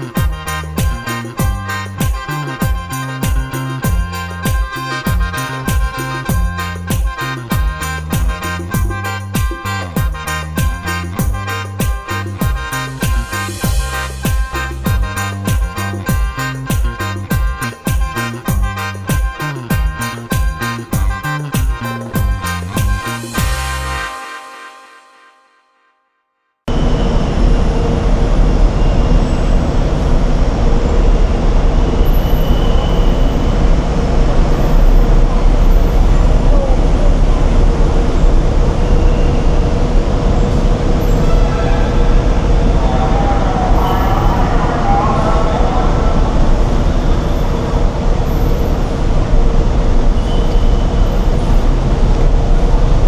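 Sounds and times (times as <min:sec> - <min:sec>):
vehicle road noise rumble: 0:00.0 - 0:23.9, 0:26.7 - 0:53.0.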